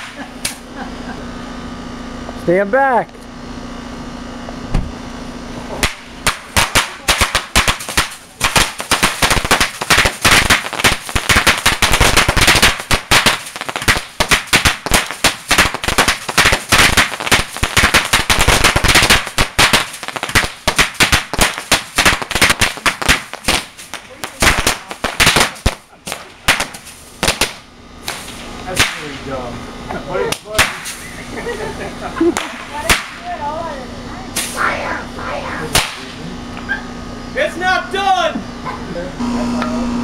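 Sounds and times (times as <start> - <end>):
fireworks cracking bangs: 0.0 - 0.8, 4.6 - 29.4, 30.3 - 31.4, 32.2 - 33.4, 34.3 - 36.3.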